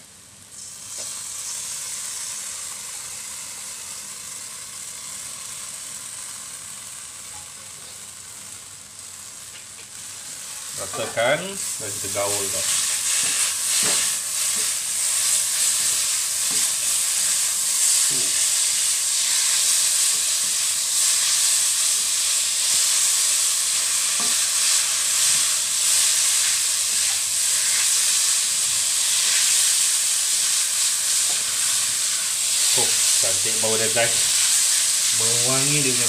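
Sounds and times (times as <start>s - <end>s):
noodles sizzling in a pan: 0.0s - 36.0s.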